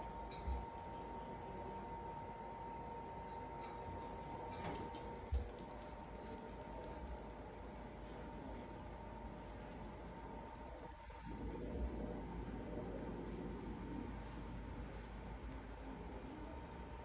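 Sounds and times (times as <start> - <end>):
sugar glider clicking: 5.1 - 11.5.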